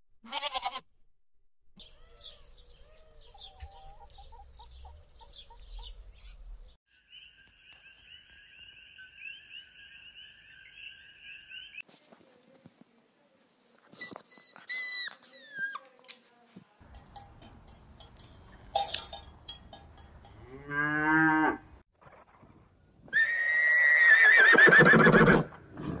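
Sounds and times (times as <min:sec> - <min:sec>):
high-pitched squeaky calls: 0:13.7 - 0:15.9
cow mooing: 0:20.4 - 0:21.7.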